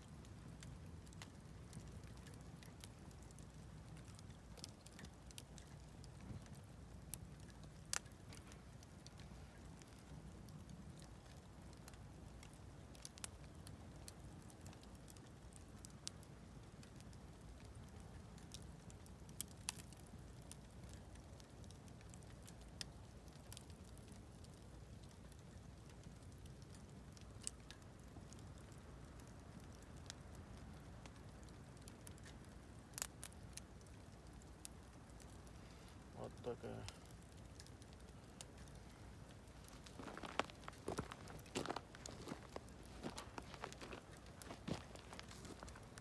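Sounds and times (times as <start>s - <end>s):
campfire crackling: 0.0s - 46.0s
sharp pops of burning wood: 0.0s - 46.0s
low steady rumble: 33.7s - 46.0s.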